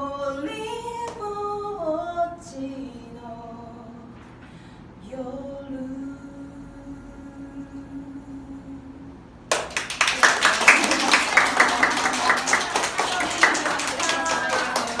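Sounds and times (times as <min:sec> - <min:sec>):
small group clapping: 0:09.5 - 0:15.0
voices calling out: 0:10.2 - 0:15.0.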